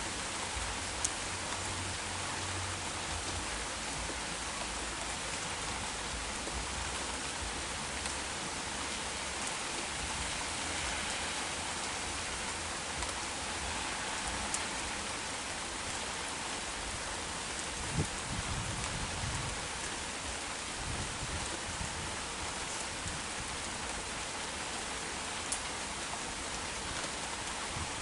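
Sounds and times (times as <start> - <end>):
heavy rain: 0.0 - 28.0
raindrops ticking: 0.2 - 16.0.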